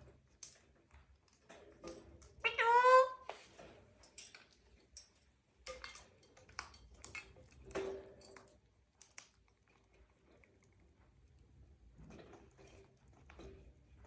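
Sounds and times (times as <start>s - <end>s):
parrot soft call: 2.4s - 3.3s.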